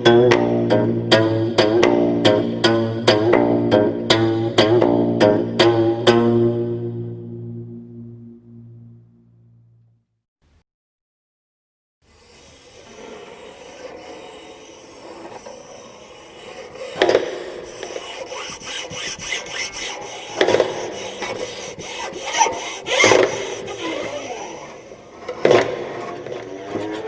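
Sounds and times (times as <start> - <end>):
rough scraping and rubbing: 12.1 - 27.0.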